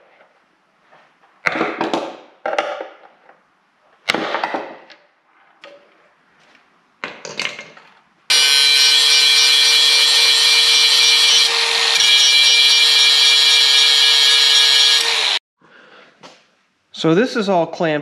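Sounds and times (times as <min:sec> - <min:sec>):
power tool cutting wood: 0:08.3 - 0:15.4.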